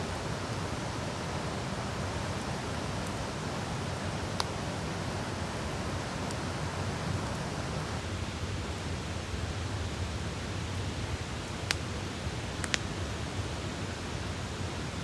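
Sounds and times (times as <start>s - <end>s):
wood campfire hissing and crackling: 0.0s - 15.0s.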